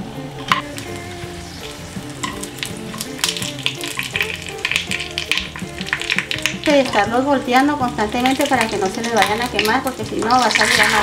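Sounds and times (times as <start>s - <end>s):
chiles sizzling in lard: 0.0s - 11.0s.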